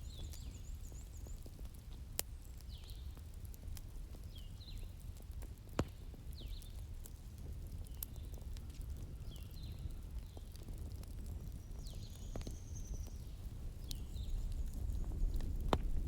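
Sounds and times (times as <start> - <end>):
small birds chirping: 0.0 - 16.0
wood fire crackling: 0.0 - 16.0.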